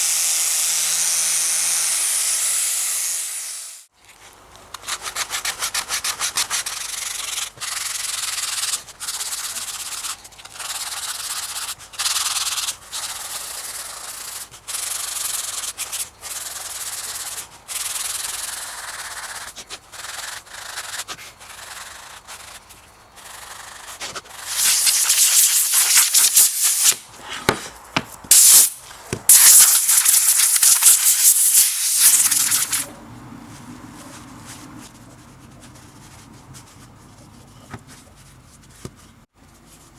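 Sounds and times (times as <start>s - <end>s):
sanding strokes: 0.0s - 3.9s, 23.2s - 32.9s
sharp hissing: 24.4s - 27.2s, 28.2s - 32.9s.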